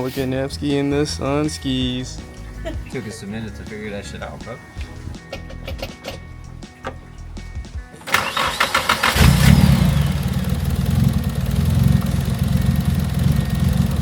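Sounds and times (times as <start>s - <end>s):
engine cranking on starter: 8.0s - 14.0s
engine idling: 8.1s - 14.0s
engine catching with falling whine: 9.0s - 14.0s.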